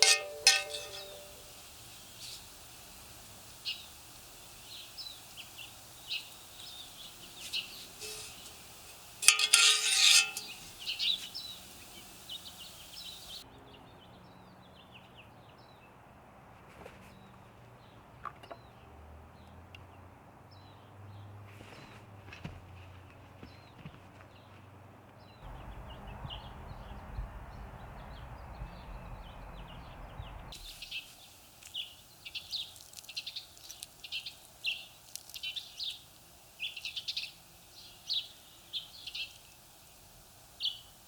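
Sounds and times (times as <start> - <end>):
small birds chirping: 0.0 - 13.4, 25.2 - 41.0.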